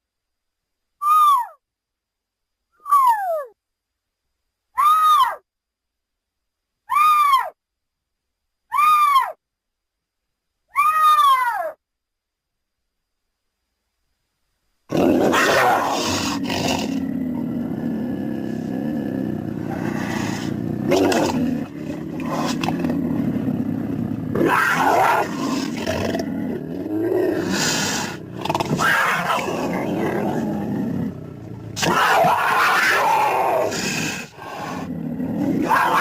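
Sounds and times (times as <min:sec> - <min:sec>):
creature growling: 0:14.9 - 0:36.0
creature roaring and snarling: 0:14.9 - 0:36.0.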